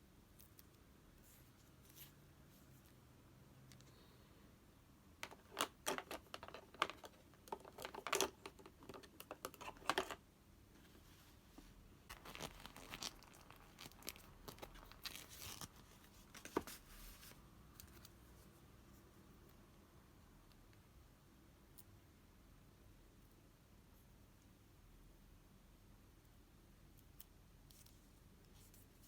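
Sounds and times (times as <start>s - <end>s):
paper crinkling and tearing: 12.1s - 17.2s.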